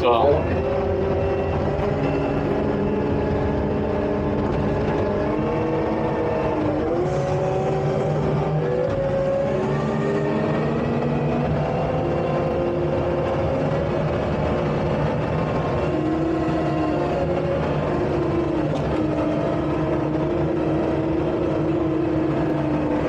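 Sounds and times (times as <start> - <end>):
skid steer engine hum: 0.0 - 23.0.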